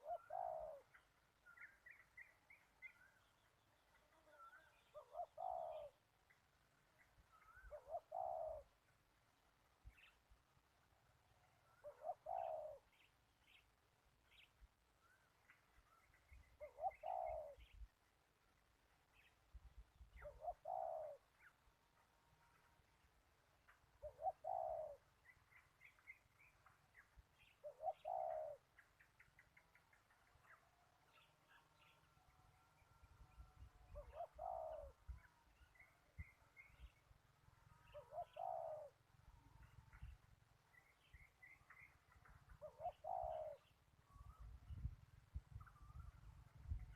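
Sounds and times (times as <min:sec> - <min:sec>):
dove cooing: 0:00.0 - 0:01.0, 0:04.1 - 0:06.0, 0:07.6 - 0:08.8, 0:11.8 - 0:12.9, 0:16.6 - 0:17.6, 0:20.2 - 0:21.3, 0:24.0 - 0:25.0, 0:27.6 - 0:28.7, 0:33.9 - 0:35.0, 0:37.8 - 0:39.0, 0:42.6 - 0:43.7
small birds chirping: 0:00.0 - 0:09.1, 0:11.7 - 0:18.1, 0:23.6 - 0:46.9.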